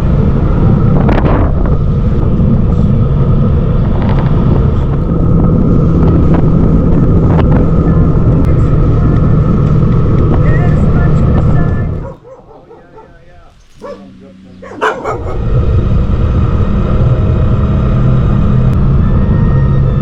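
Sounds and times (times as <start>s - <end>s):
motorcycle engine running: 0.0s - 12.7s
wind buffeting microphone: 0.0s - 20.0s.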